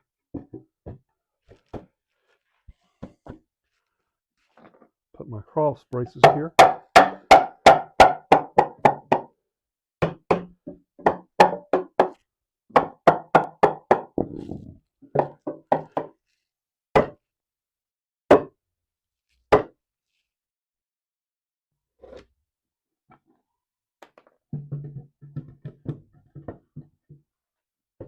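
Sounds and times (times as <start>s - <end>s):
hammer striking wood: 6.2s - 9.3s, 10.0s - 14.2s.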